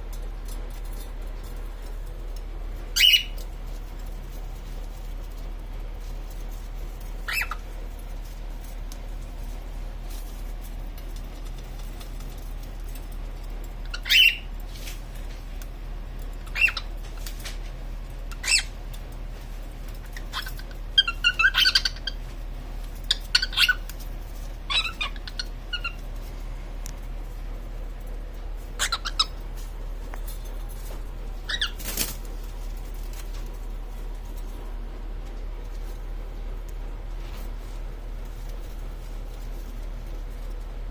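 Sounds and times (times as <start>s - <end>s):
steady low hum: 0.0s - 40.9s
cockatiel chirping: 2.9s - 3.4s, 7.2s - 7.7s, 13.8s - 14.6s, 16.4s - 16.9s, 18.3s - 18.8s, 20.0s - 22.3s, 23.0s - 24.0s, 24.6s - 26.1s, 28.7s - 29.4s, 31.4s - 32.2s.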